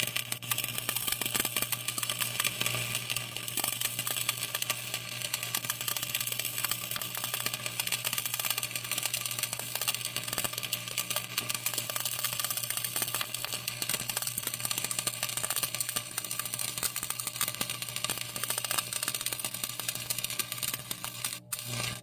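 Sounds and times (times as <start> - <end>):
arc welding crackle: 0.0 - 22.0.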